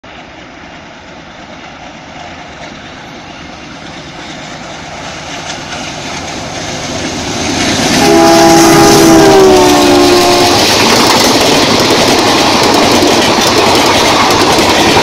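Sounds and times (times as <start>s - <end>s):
passenger train rumbling: 0.0s - 15.0s
locomotive horn blast: 8.0s - 10.7s.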